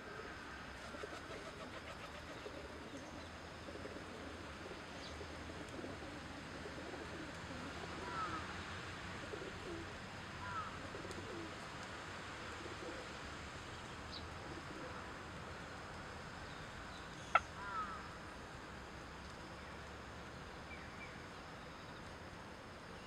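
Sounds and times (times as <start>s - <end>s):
birds calling: 8.0s - 8.6s, 10.4s - 11.4s, 16.6s - 18.1s.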